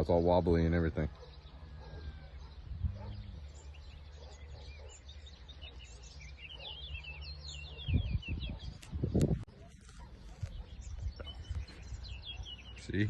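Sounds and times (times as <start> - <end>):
small birds chirping: 0.0 - 13.0
wind rumble on microphone: 2.0 - 3.5, 6.9 - 12.8.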